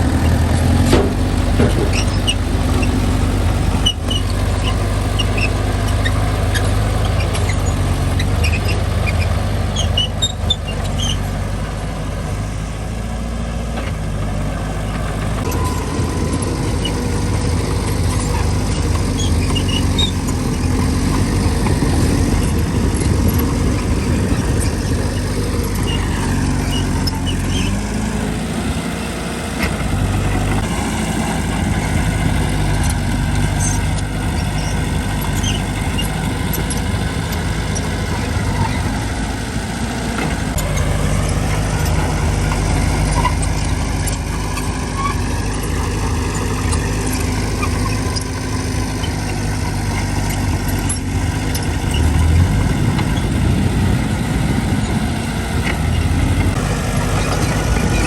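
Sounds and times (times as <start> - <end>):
bulldozer diesel engine: 0.0 - 58.0
faint high squeaks: 1.6 - 11.4, 14.8 - 21.6, 23.2 - 28.2, 32.6 - 39.0.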